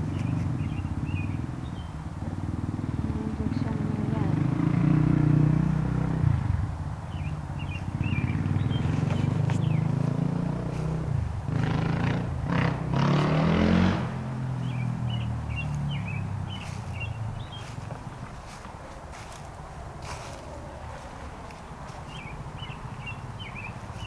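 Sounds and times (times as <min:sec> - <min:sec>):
small birds chirping: 0:00.0 - 0:02.1, 0:07.0 - 0:11.0, 0:14.6 - 0:24.0
vehicle engine running: 0:00.0 - 0:06.4, 0:07.1 - 0:13.1, 0:14.1 - 0:24.0.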